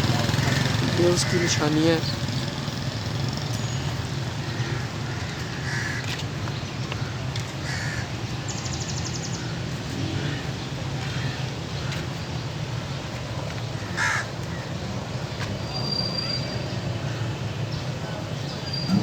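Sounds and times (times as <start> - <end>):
crows cawing: 0.1 - 2.1, 4.4 - 6.4, 7.0 - 8.2, 10.2 - 12.1, 13.8 - 14.8.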